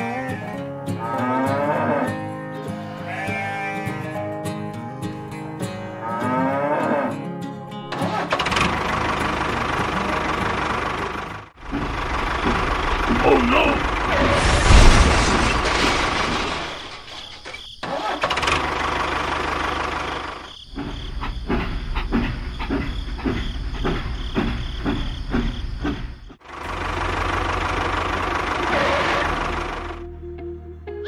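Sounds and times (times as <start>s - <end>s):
vehicle engine chugging: 8.0s - 14.2s, 18.2s - 30.0s
low engine hum: 8.4s - 15.6s, 18.5s - 30.4s.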